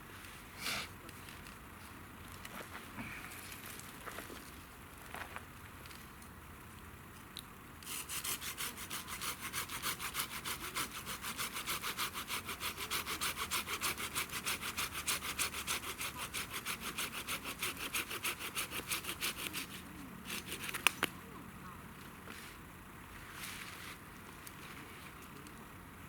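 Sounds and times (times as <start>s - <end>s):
hand saw cutting wood: 7.8s - 20.9s.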